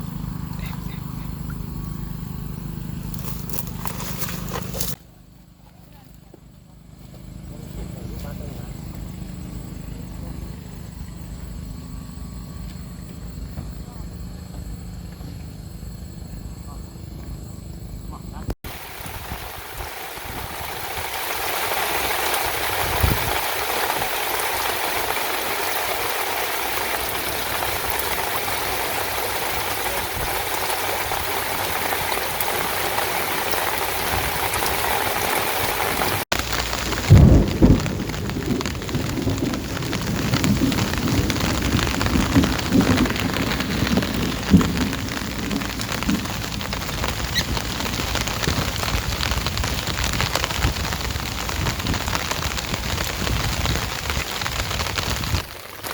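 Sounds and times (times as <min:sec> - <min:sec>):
patter of drops: 0:00.1 - 0:05.2
heavy rain falling: 0:05.9 - 0:13.8, 0:18.6 - 0:55.9.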